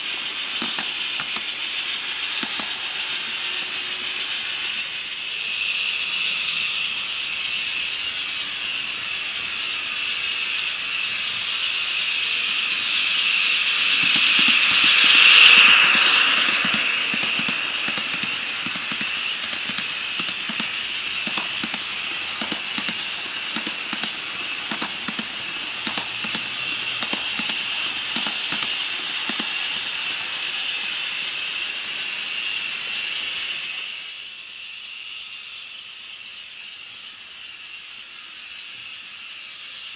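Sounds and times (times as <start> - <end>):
model locomotive hissing and whirring: 0.0 - 39.9
sharp clicks: 0.6 - 1.6, 2.4 - 3.4, 14.0 - 30.0.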